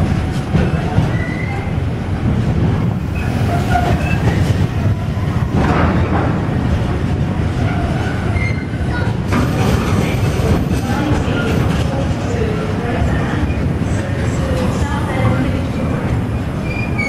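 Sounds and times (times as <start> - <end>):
train wheels rumbling on rail: 0.0 - 17.0
high wheel squeals: 16.6 - 17.0.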